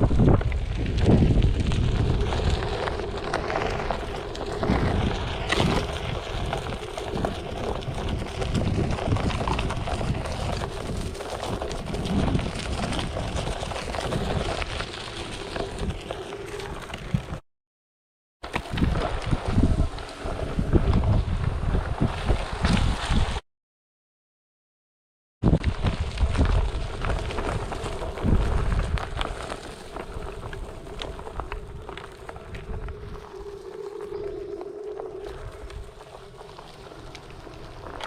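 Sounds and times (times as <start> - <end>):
tyre crunching on dirt trail: 0.0 - 17.4, 25.5 - 38.0
wind buffeting microphone: 0.0 - 17.4, 18.6 - 23.4, 25.4 - 38.0.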